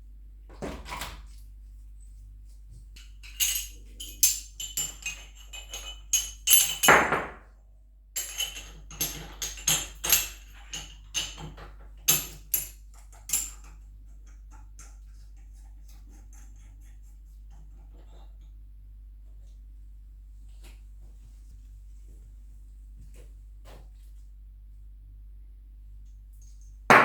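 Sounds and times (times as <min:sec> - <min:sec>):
metal tools clinking: 0:03.0 - 0:07.3, 0:08.2 - 0:13.8.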